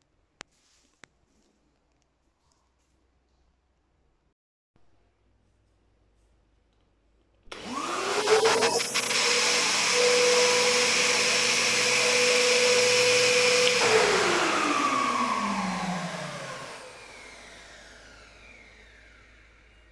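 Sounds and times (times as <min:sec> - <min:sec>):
motor winding down: 0:07.5 - 0:19.8
vacuum cleaner motor whine: 0:07.5 - 0:19.9.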